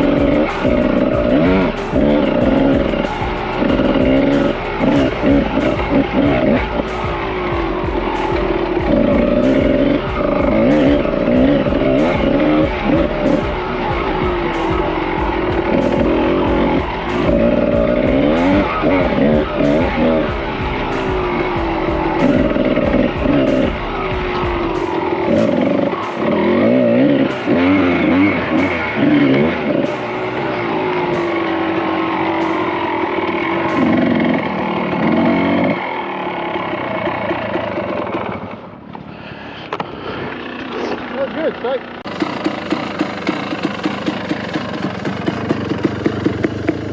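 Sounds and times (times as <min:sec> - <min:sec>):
background music: 0:00.0 - 0:36.2
dirt bike engine revving: 0:00.0 - 0:46.9.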